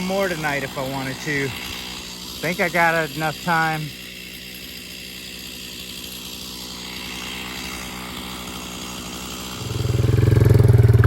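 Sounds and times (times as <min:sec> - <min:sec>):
small gasoline engine running: 0:00.0 - 0:11.0
loud pulsing engine: 0:05.9 - 0:11.0.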